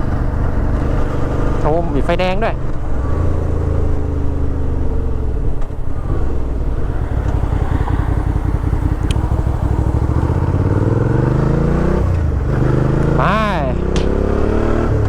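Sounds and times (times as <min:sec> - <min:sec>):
motorcycle engine idling: 0:02.7 - 0:13.8.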